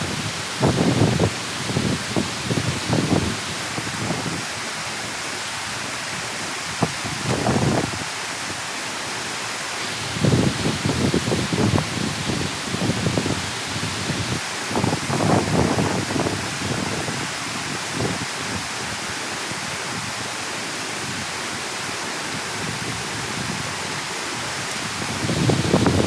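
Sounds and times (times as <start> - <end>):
wind buffeting microphone: 0.0 - 4.5, 6.7 - 8.1, 10.0 - 18.7, 22.6 - 26.0
water rushing through dam: 0.0 - 26.0.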